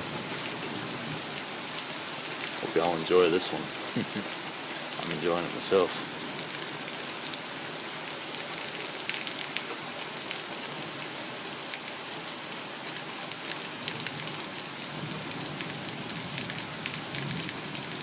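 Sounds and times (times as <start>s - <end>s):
heavy rain hissing: 0.0s - 18.0s.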